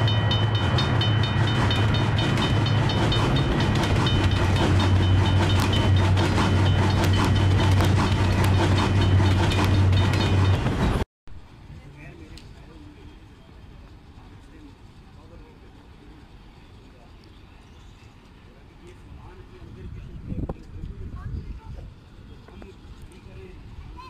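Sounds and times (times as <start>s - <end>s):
high ringing tone: 0.0s - 7.9s
wheels clickety-clack: 0.0s - 11.0s
train rumbling: 0.0s - 24.0s.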